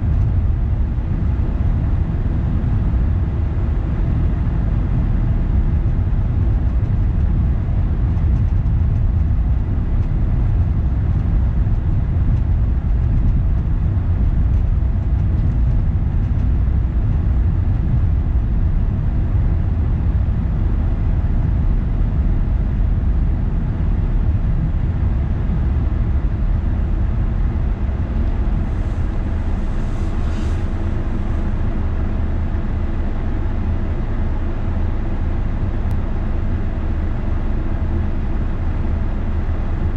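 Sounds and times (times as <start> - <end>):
car road and engine rumble: 0.0 - 39.9
brief hiss: 28.6 - 31.6.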